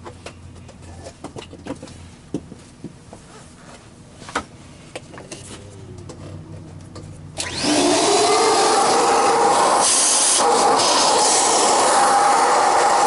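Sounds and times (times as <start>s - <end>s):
vacuum cleaner running: 7.4s - 13.0s.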